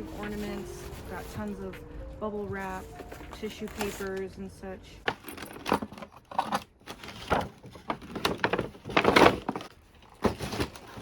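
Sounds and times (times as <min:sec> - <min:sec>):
packing wrap rustling: 0:05.2 - 0:11.0.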